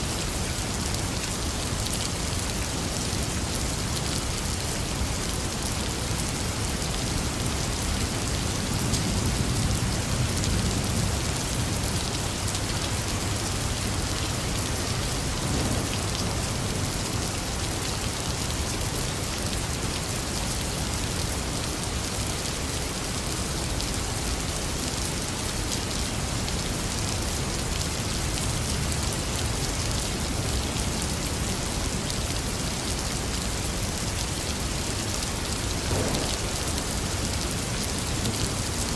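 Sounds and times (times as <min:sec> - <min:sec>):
rain pattering: 0:00.0 - 0:38.9
low rumble: 0:15.2 - 0:17.3, 0:35.6 - 0:38.5.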